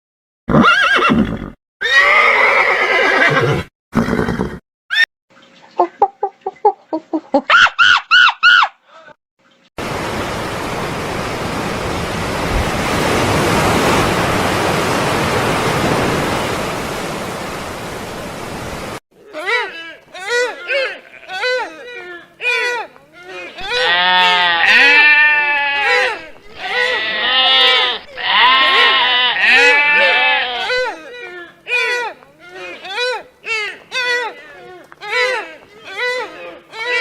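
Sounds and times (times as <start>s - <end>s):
horse whinnying: 0.5s - 5.0s
animal calls: 5.8s - 8.8s
steady rushing noise: 9.8s - 19.0s.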